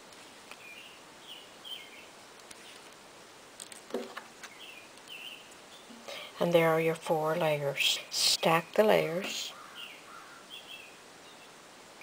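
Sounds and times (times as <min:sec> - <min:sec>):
small bird chirping: 0:00.5 - 0:03.0, 0:04.4 - 0:06.4, 0:08.9 - 0:11.6.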